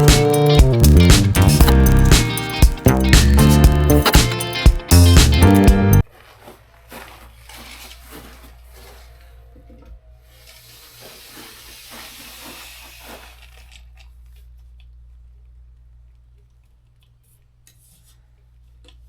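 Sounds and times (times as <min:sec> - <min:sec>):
faint hiss: 0:10.4 - 0:13.5.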